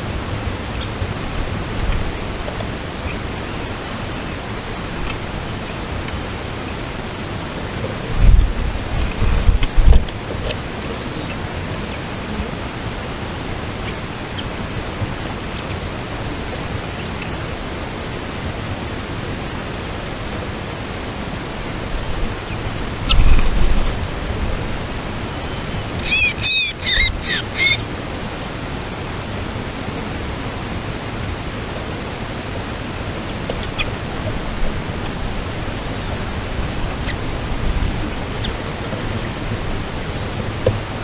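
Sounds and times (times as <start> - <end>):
outdoor hiss: 0.0 - 41.0
bird harsh calls: 22.3 - 24.0, 25.4 - 27.8.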